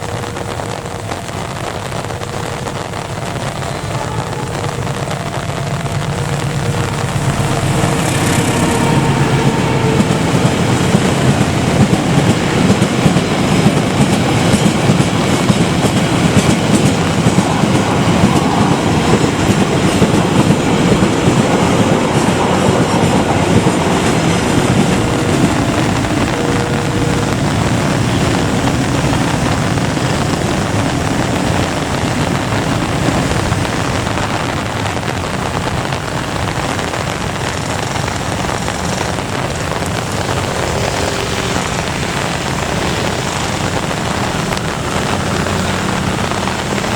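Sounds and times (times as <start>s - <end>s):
heavy rain: 0.0s - 46.9s
train wheels clattering over joints: 4.7s - 34.1s.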